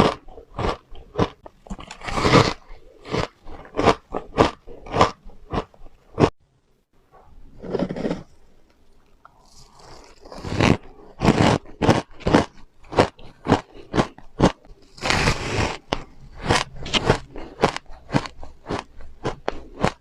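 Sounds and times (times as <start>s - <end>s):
chewing crunchy ice: 0.0s - 6.3s, 9.0s - 20.0s.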